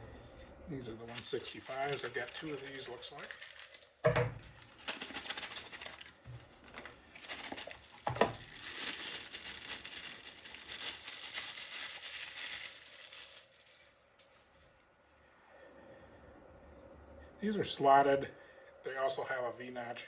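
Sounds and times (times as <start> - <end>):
packaging crinkling: 1.0 - 14.5.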